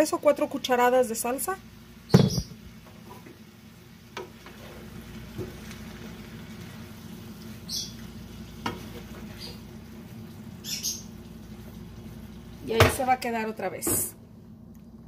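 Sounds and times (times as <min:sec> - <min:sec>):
stir-fry sizzling in a pan: 0:00.0 - 0:14.0
spoon knocking against pan: 0:02.1 - 0:02.6.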